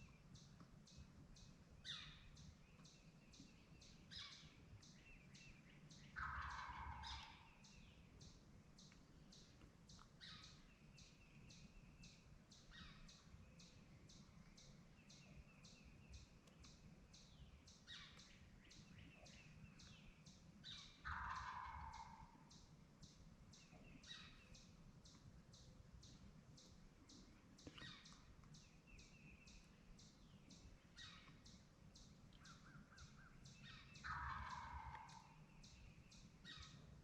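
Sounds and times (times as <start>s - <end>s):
distant wild turkey gobble: 6.1s - 7.6s, 20.7s - 22.5s, 32.4s - 35.6s.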